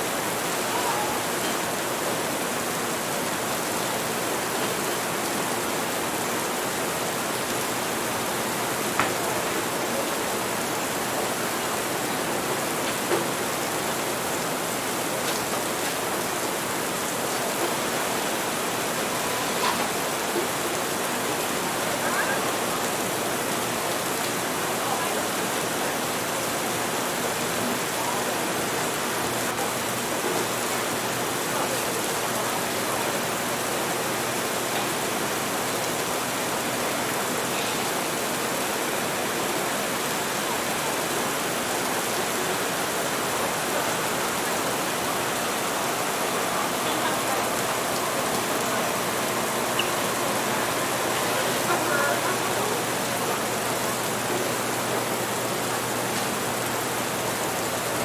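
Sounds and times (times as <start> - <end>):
murmur of chatter: 0.0 - 5.0, 17.1 - 58.0
steady rain: 0.0 - 58.0.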